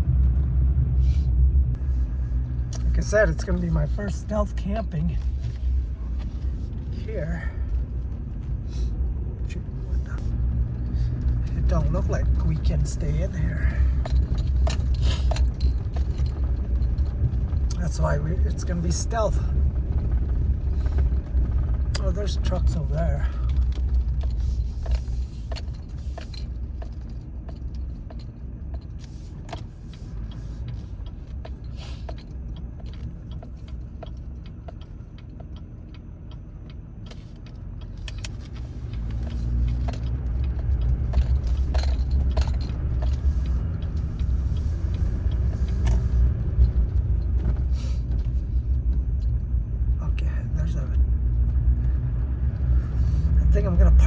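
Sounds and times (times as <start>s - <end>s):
truck engine and road rumble: 0.0s - 54.0s
light clicks and rattles: 9.4s - 52.8s.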